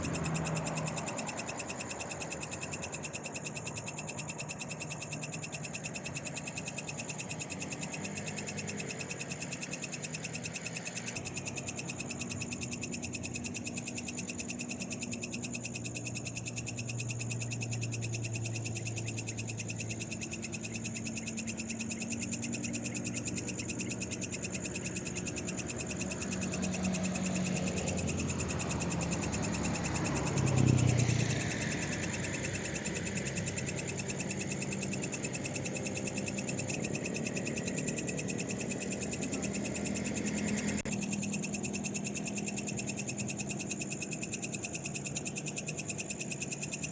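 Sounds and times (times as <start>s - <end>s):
vehicle passing: 0.0s - 2.2s, 26.2s - 34.0s
frogs calling: 0.0s - 46.9s
high insect trilling: 0.0s - 46.9s.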